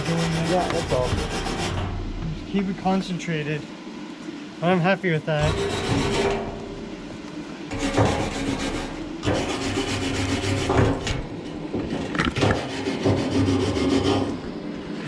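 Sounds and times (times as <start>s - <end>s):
wire brush rasping on metal: 0.0s - 2.0s, 5.4s - 6.6s, 7.7s - 11.2s, 12.4s - 14.4s
low hum: 0.0s - 4.6s, 5.4s - 12.2s.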